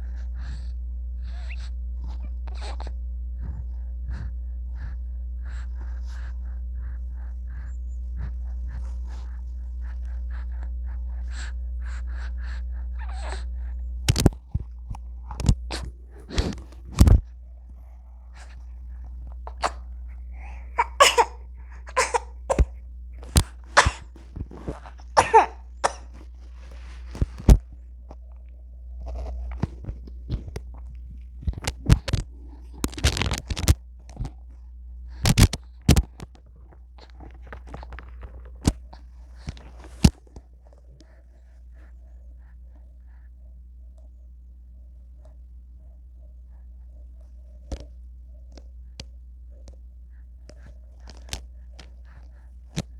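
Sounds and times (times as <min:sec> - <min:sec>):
steady low hum: 0:00.0 - 0:52.9
baby gasps and grunts: 0:20.4 - 0:22.8, 0:23.7 - 0:26.2
baby sneezing and coughing: 0:20.8 - 0:22.7, 0:23.8 - 0:24.1, 0:25.2 - 0:26.2.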